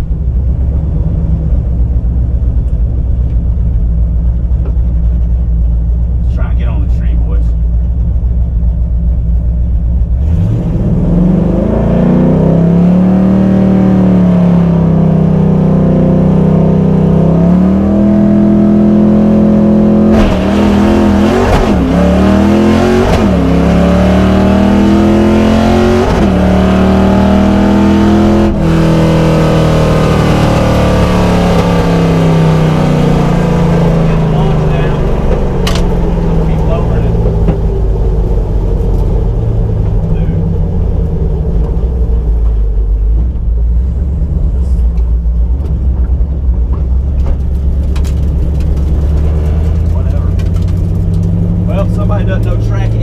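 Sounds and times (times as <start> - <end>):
car engine pulling under load: 17.5 - 52.9.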